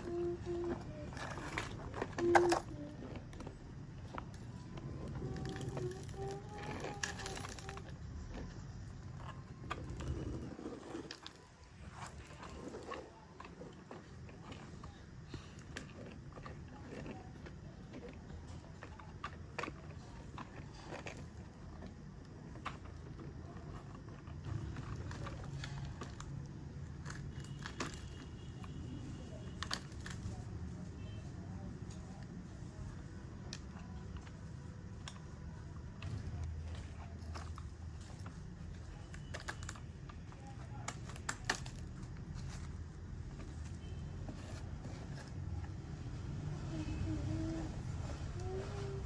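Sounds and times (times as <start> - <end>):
plastic toys clicking and knocking: 0.0 - 10.5, 18.4 - 30.4, 33.5 - 43.7.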